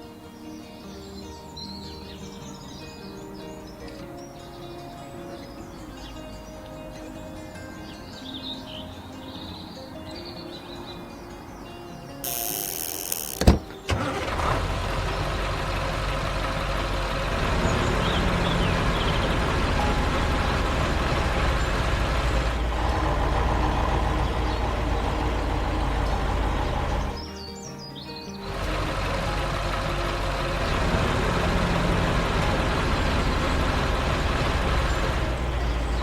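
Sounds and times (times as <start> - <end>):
truck engine rumbling: 12.8 - 27.2, 28.4 - 36.0.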